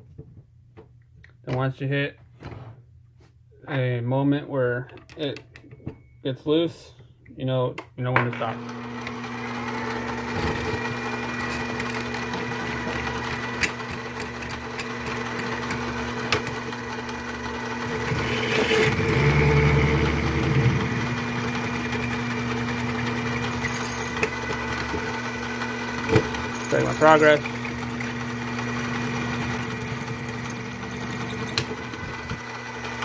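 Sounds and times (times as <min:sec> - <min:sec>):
lathe motor whine: 0:15.8 - 0:33.0
drill bit cutting metal: 0:19.8 - 0:24.4, 0:26.5 - 0:31.8.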